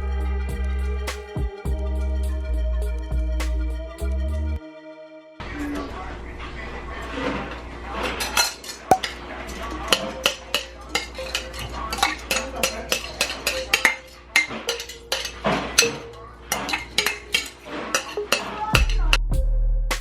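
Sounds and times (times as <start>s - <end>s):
spoon scraping a bowl: 9.9s - 18.5s.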